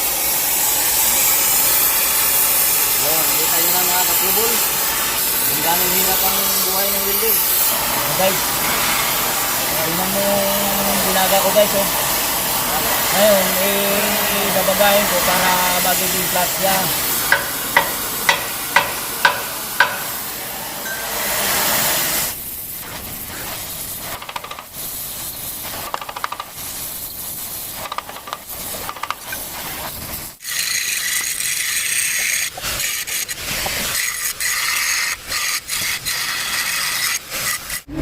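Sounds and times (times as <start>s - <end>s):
angle grinder hiss: 0.0s - 38.0s
arc welding crackling hiss: 0.0s - 38.0s
hammer tapping metal: 17.3s - 20.2s.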